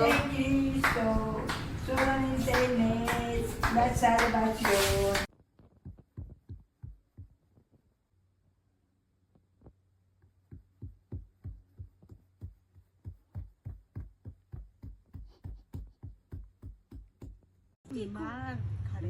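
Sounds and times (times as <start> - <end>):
soft low thumps: 5.6 - 7.8, 10.4 - 17.5.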